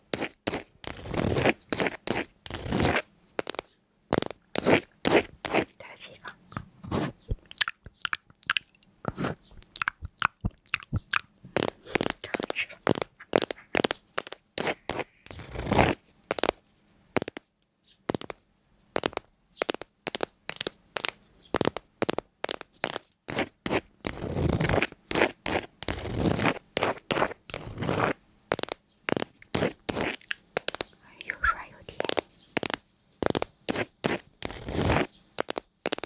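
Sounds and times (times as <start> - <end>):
rapid scratching and scraping: 0.0 - 5.7, 6.8 - 7.4, 11.6 - 16.6, 19.0 - 30.9, 31.9 - 36.0.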